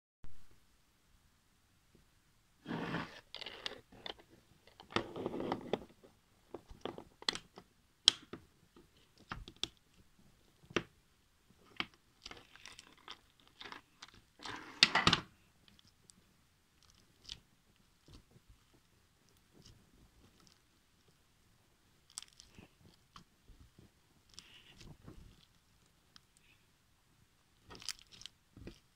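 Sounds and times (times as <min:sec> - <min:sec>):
hands squeezing slime: 0:16.8 - 0:20.7, 0:22.0 - 0:26.6, 0:27.6 - 0:28.9.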